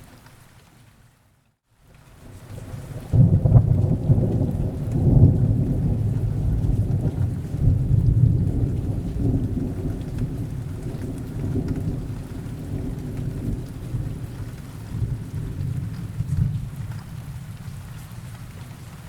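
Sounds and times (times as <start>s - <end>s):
steady rain: 0.0s - 19.0s
rolling thunder: 2.6s - 17.9s.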